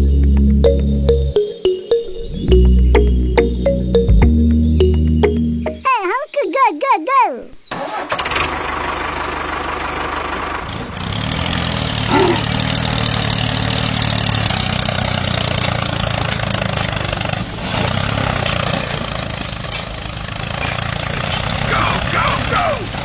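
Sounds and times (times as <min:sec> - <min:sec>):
mini tractor motor running: 0:07.8 - 0:23.0.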